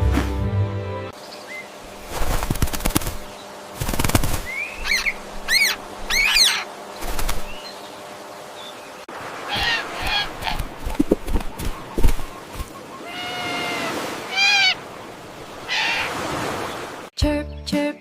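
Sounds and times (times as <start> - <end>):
poultry wing flapping: 1.9 - 7.6, 9.5 - 12.8
poultry calls: 3.0 - 7.8, 9.4 - 14.9, 15.6 - 16.3
harsh poultry calls: 4.5 - 7.4, 9.3 - 10.8, 11.4 - 14.9, 15.6 - 16.3.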